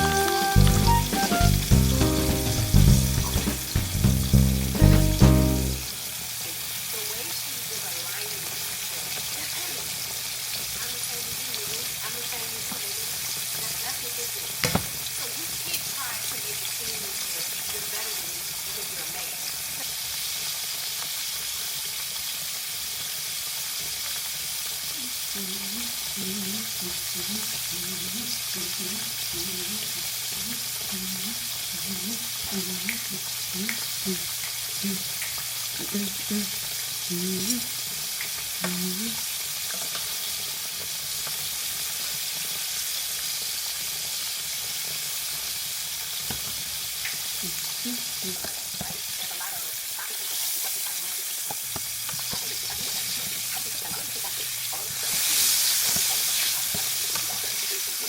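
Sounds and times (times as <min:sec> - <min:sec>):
short low pitched sounds: 0:00.0 - 0:05.9
food sizzling in a frying pan: 0:00.0 - 0:58.0.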